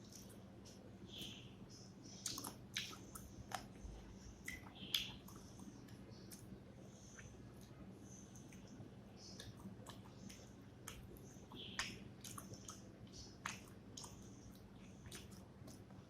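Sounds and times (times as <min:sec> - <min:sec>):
faint low hum: 0:00.0 - 0:16.0
wet chewing mouth smacks: 0:02.2 - 0:03.7, 0:13.4 - 0:15.8.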